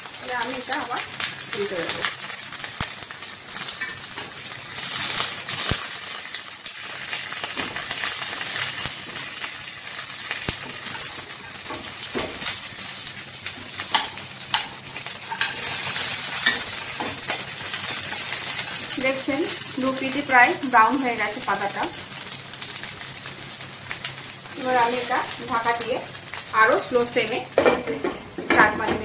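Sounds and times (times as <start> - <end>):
fish parcels sizzling in oil: 0.0 - 29.0
spatula and spoon scraping a pan: 3.6 - 9.2, 13.5 - 18.9.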